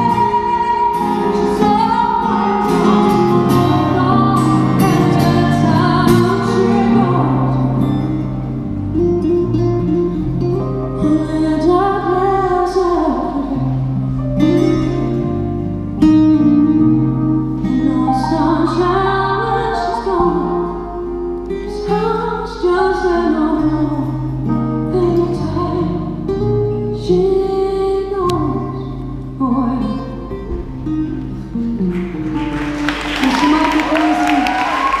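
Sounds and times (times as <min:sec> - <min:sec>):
woman singing: 0:00.0 - 0:08.5, 0:10.9 - 0:13.9, 0:17.6 - 0:30.5, 0:33.2 - 0:35.0
guitar accompaniment: 0:00.0 - 0:35.0.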